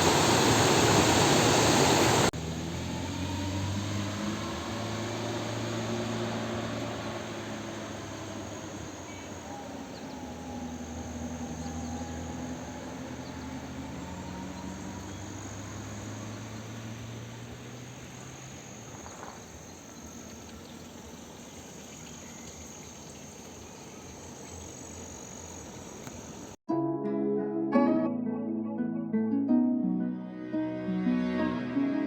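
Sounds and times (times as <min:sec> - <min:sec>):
outdoor background hum: 0:00.0 - 0:26.6
insects chirring: 0:04.3 - 0:26.6.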